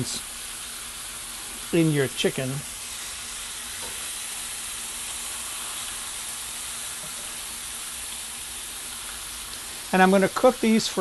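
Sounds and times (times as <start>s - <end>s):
chicken sizzling on grill pan: 0.0s - 11.0s.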